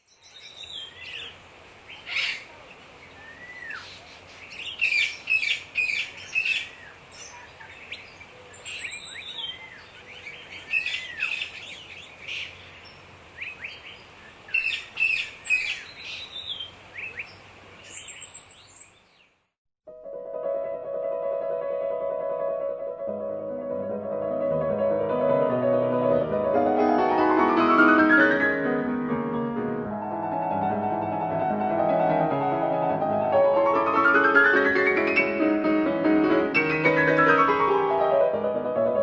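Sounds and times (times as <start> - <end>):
birds chirping and singing: 0.0 - 19.4
faint background hiss: 0.0 - 19.5.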